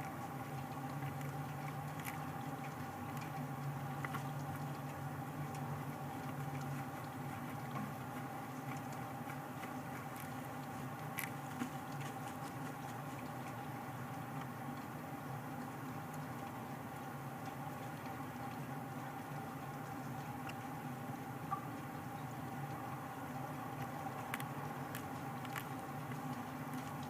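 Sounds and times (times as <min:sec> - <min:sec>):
electrical hum: 0:00.0 - 0:27.0
bird clicks and scratches: 0:05.5 - 0:13.6, 0:23.8 - 0:27.0.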